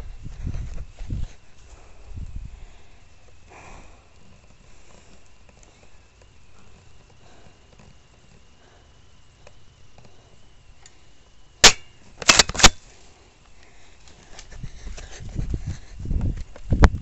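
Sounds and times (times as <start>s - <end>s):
airsoft shotgun cracks: 11.6s - 12.8s.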